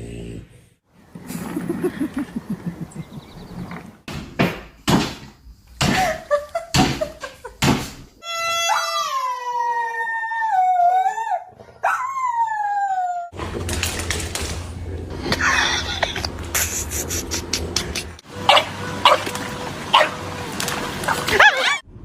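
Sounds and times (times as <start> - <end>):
dog howling: 8.6 - 13.4.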